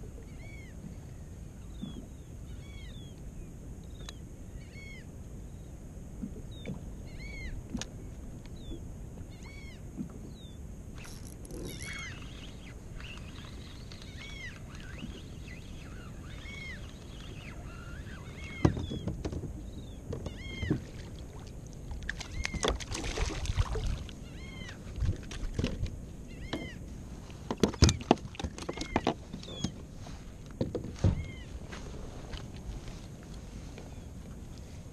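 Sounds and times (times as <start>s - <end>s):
water noise: 6.1s - 34.9s
short arched animal calls: 11.0s - 18.6s
knocks and clatter on kayak: 18.5s - 20.9s, 27.4s - 29.8s, 30.5s - 31.4s.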